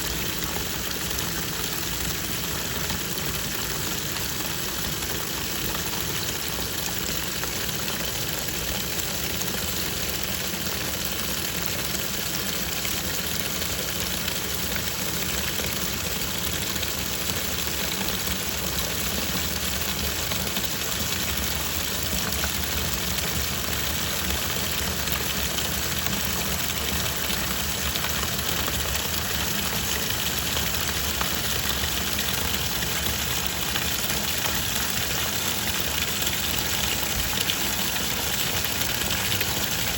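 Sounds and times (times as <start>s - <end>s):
washing machine water churning: 0.0s - 39.9s.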